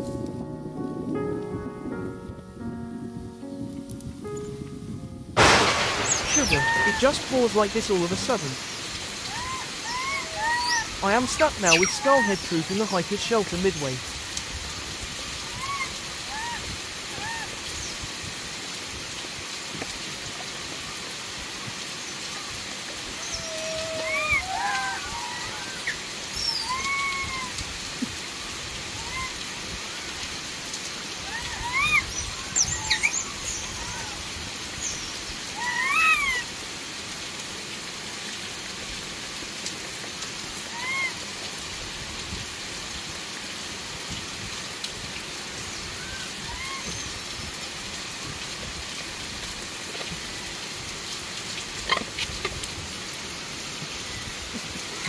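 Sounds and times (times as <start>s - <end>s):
heavy rain pouring: 5.3s - 55.0s
rising and falling animal calls: 5.4s - 7.5s, 9.2s - 12.8s, 15.4s - 17.6s, 23.2s - 27.6s, 29.0s - 29.5s, 31.2s - 34.3s, 35.5s - 36.5s, 40.7s - 41.2s, 46.0s - 47.1s.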